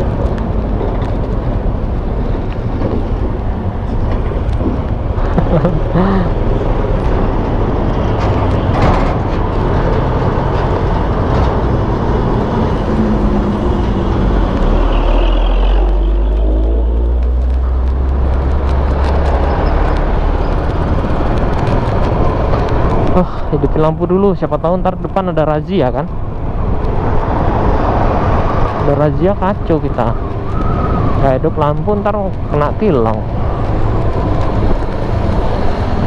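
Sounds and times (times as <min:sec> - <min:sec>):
wind and road noise: 0:00.0 - 0:36.0.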